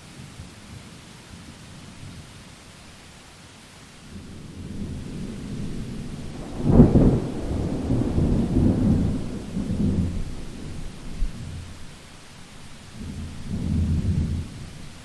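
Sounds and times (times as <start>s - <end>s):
steady rain: 0.0s - 15.0s
thunder rumbling: 4.2s - 15.0s.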